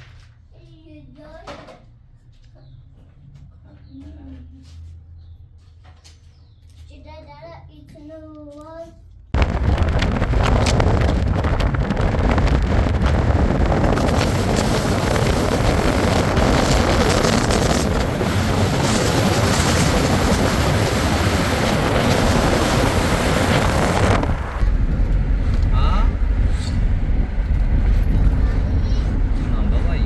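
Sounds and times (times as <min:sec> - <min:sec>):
deep rumble: 0:09.2 - 0:30.0
wind buffeting microphone: 0:09.4 - 0:30.0.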